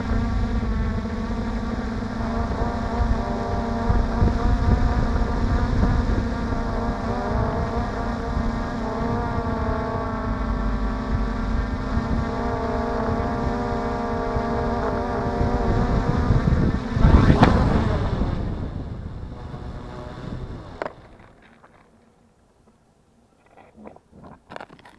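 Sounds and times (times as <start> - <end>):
drone motors whining: 0.0 - 22.1
loud rushing thump: 16.6 - 21.2.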